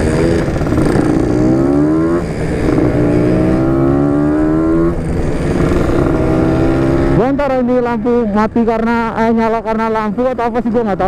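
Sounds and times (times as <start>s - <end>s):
motorcycle engine accelerating: 0.0s - 8.2s.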